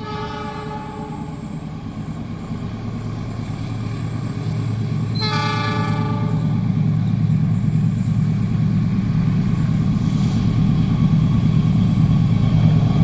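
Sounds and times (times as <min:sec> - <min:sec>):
train horn blasts: 0:00.0 - 0:01.4, 0:05.1 - 0:06.6
approaching train rumble: 0:00.0 - 0:13.0.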